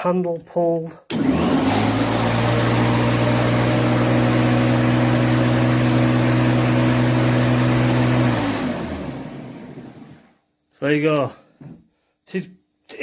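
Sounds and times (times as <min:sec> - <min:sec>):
electric lawnmower running: 0:01.1 - 0:10.3
lawnmower spinning down: 0:01.1 - 0:10.3.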